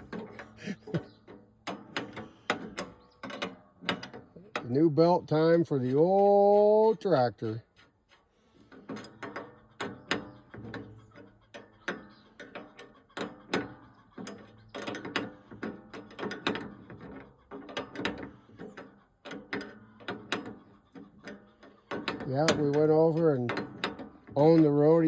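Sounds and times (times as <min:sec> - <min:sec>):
hand tools clicking and clanking: 0:00.0 - 0:25.0.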